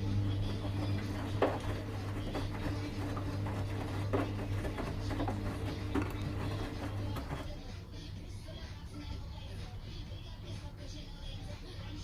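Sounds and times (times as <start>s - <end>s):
washing machine motor hum: 0.0s - 10.8s
washing machine drum knocks: 0.4s - 7.4s.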